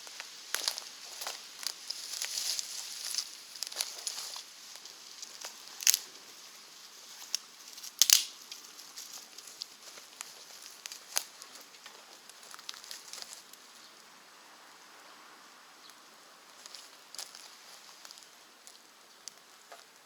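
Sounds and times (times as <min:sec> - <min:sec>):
wood fire crackling and popping: 0:05.2 - 0:06.0, 0:08.0 - 0:08.6.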